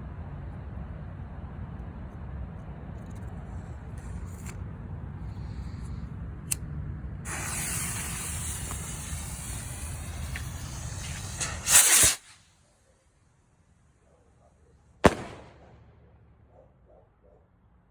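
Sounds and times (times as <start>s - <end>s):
firework blast: 7.3s - 12.6s, 15.0s - 15.9s
firework fuse hissing: 7.3s - 12.8s.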